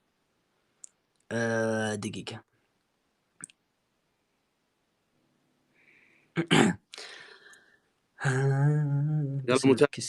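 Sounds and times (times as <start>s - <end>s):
man clearing his throat: 6.4s - 6.8s.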